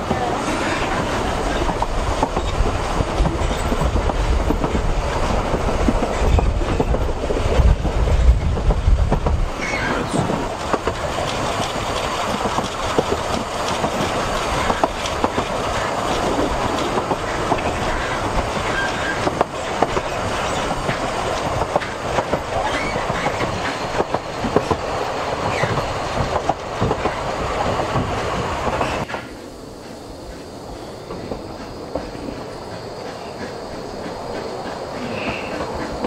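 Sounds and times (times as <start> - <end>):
train carriage rumble: 0.0 - 36.0
wheels clicking on rails: 0.0 - 36.0
faint wheel squeals: 22.6 - 23.4.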